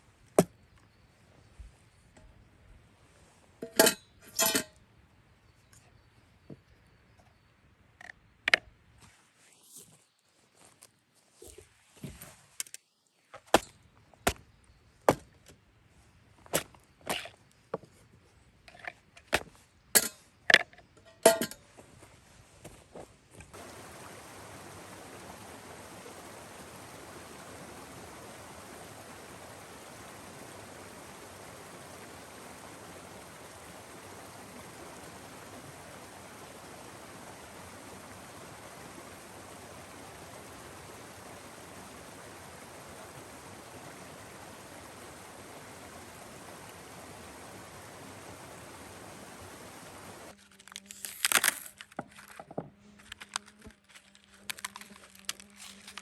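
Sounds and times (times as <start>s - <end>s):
low steady buzz: 23.5s - 50.4s
stream water flowing: 23.5s - 52.4s.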